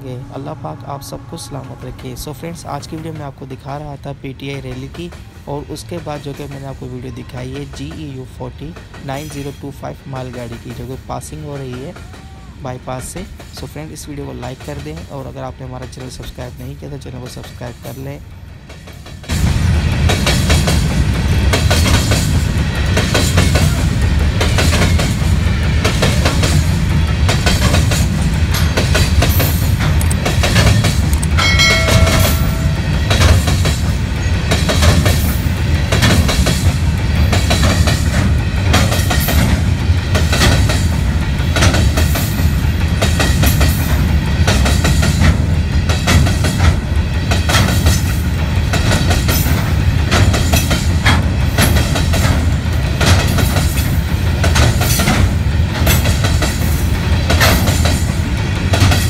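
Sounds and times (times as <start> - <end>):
freight train rumbling past: 0.0 - 59.0
wheel clatter over rail joints: 12.9 - 59.0.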